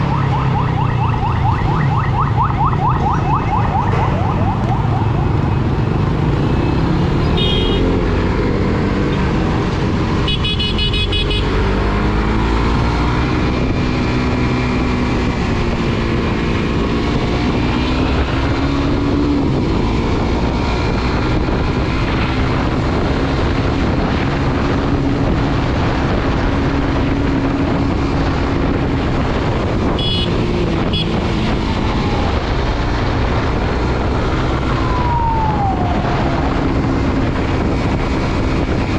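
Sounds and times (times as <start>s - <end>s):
motorcycle engine: 0.0s - 38.9s
road and wind noise: 0.0s - 38.9s
vehicle horns tooting: 7.2s - 8.0s, 10.3s - 11.5s, 29.9s - 31.2s.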